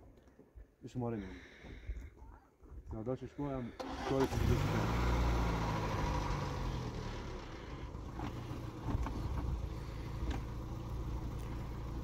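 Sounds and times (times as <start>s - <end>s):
car engine idling: 3.8s - 12.0s.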